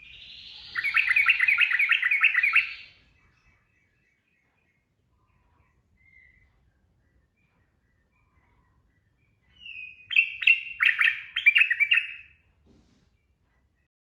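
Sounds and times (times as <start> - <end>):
bird singing bubbly phrase: 0.0 - 2.9.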